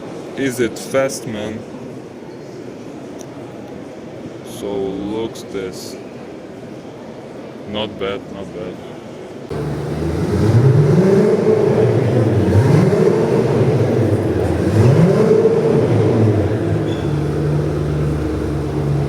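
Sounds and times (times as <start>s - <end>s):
car engine revving and idling: 9.5s - 19.0s.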